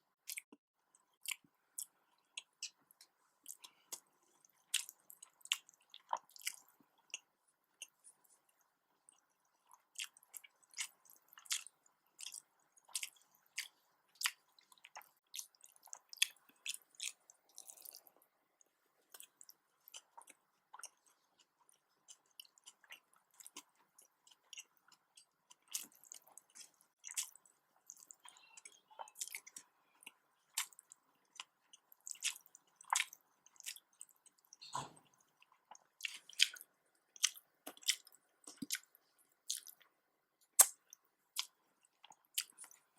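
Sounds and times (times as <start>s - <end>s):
chewing and mouth smacks: 0.2s - 42.9s.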